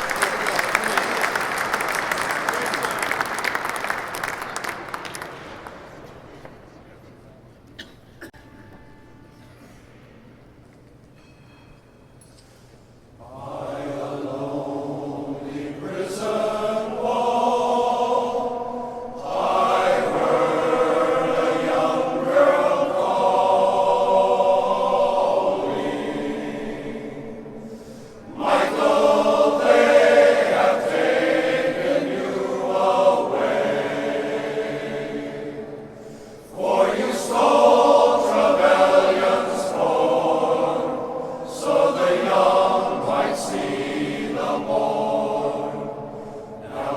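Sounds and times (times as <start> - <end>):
men's choir singing in harmony: 13.2 - 46.9.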